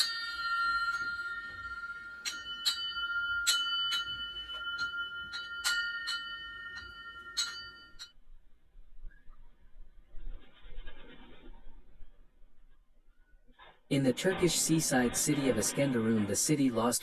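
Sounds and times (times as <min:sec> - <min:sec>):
metallic bell chiming: 0:00.0 - 0:08.2.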